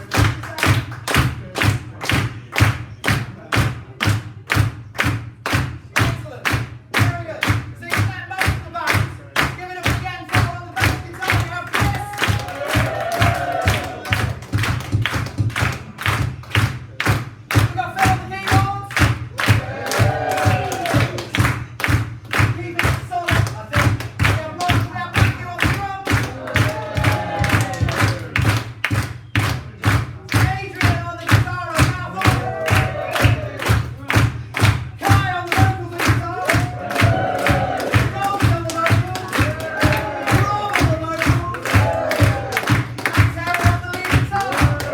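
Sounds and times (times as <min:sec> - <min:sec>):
band music with drum beat: 0:00.0 - 0:44.9
voices singing: 0:36.4 - 0:42.8, 0:43.6 - 0:44.9.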